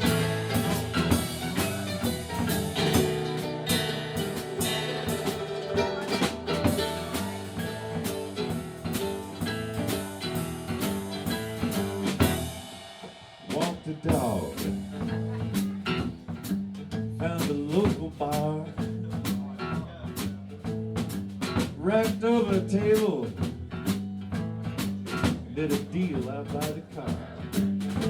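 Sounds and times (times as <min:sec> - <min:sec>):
electric guitar: 0:00.0 - 0:12.6
bass guitar: 0:00.0 - 0:12.8, 0:13.6 - 0:28.0
drums: 0:00.0 - 0:28.0.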